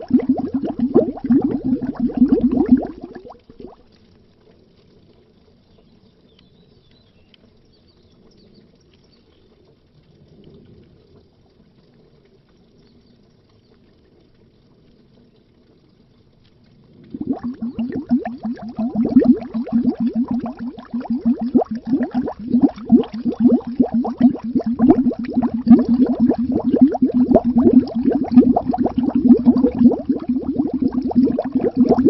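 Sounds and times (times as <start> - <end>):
underwater bubbling: 0.0 - 5.2, 16.4 - 32.0
low water rumble: 0.0 - 32.0.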